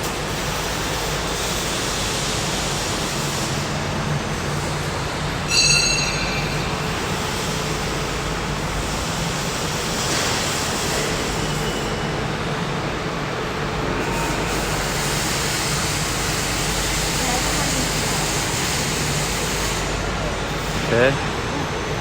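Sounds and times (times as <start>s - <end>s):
factory machinery hum: 0.0s - 22.0s
high-pitched metallic squeal: 5.5s - 7.6s.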